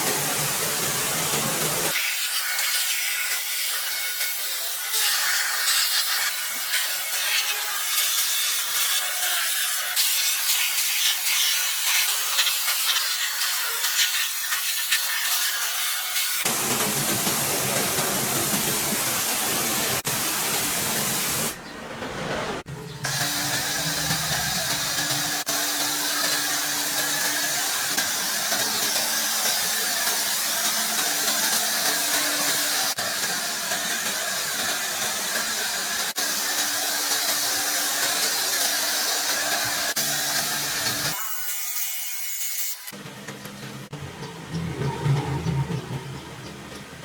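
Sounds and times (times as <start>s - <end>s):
pressurised spray hissing: 0.0s - 2.9s, 9.8s - 21.6s
low motor hum: 43.0s - 47.0s
deep rushing noise: 43.9s - 47.0s.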